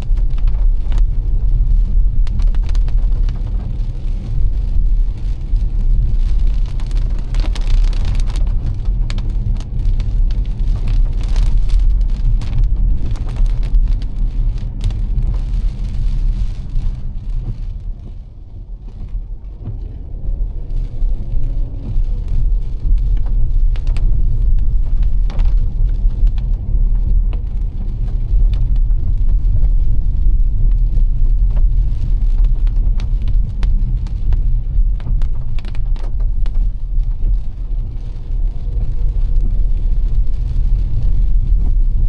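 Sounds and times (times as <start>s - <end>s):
car road and engine rumble: 0.0s - 42.0s
raindrops hitting car: 0.0s - 42.0s.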